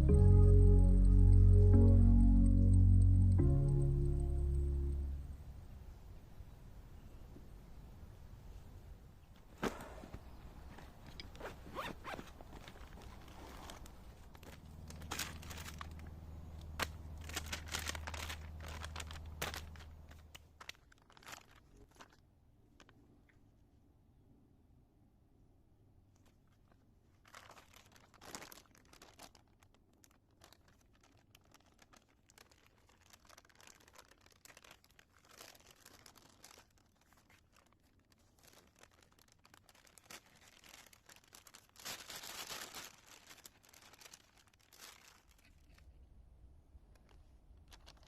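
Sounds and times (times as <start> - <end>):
rustling and crinkling: 9.2 - 23.4, 26.1 - 46.0, 46.8 - 48.0.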